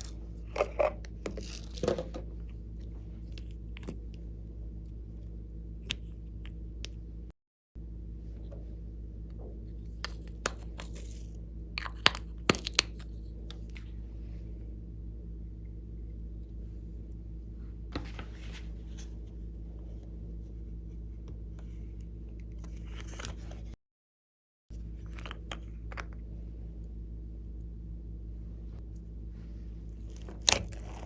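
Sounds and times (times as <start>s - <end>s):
steady low hum: 0.0s - 23.8s, 24.7s - 31.0s.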